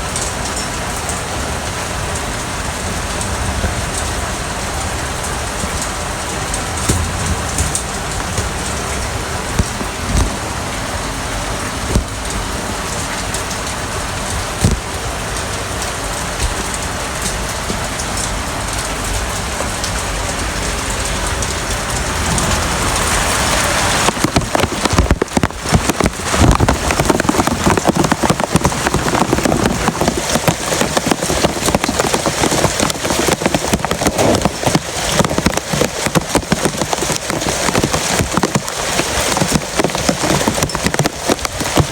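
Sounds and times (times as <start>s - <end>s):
heavy rain falling: 0.0s - 41.9s
low thuds: 6.3s - 10.8s, 11.6s - 12.6s.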